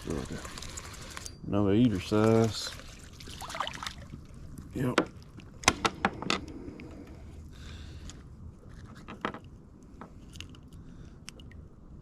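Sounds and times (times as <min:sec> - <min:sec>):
light clicks and scrapes: 0:08.0 - 0:11.6.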